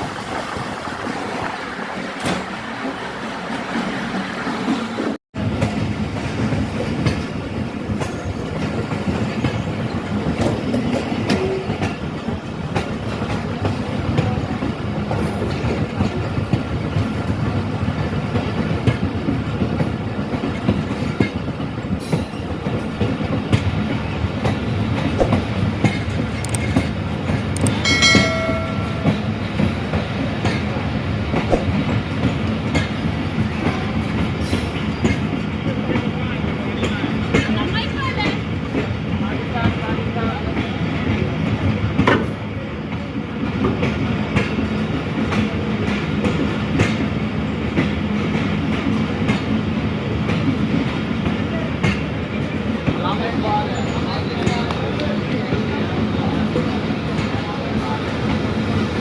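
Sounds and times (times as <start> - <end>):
train rumbling: 0.0 - 59.0
wheels clicking over rail joints: 6.5 - 39.9.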